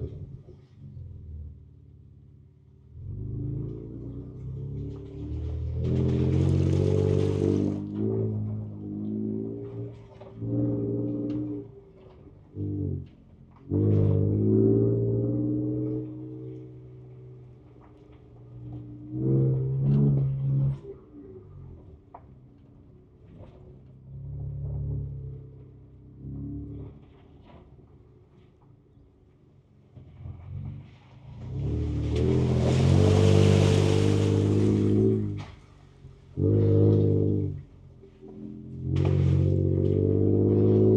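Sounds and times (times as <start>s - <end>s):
engine revving inside car cab: 2.8s - 22.0s, 24.1s - 27.3s, 31.4s - 40.9s.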